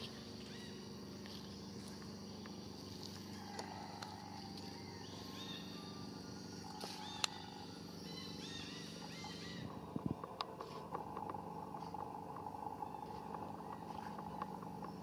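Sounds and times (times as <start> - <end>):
bird chirping: 0.0 - 2.6, 4.7 - 15.0
steady low hum: 0.0 - 15.0
sharp clicks: 10.1 - 15.0.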